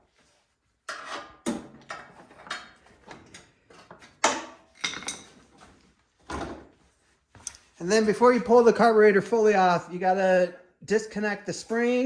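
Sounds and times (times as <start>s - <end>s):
tools clicking and tapping on metal: 0.9s - 5.4s.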